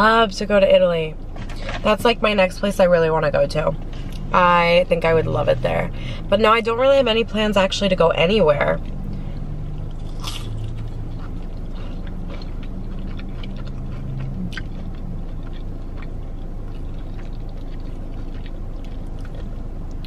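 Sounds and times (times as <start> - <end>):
low hum in car: 0.0 - 20.0
chewing crunches and mouth clicks: 8.8 - 20.0.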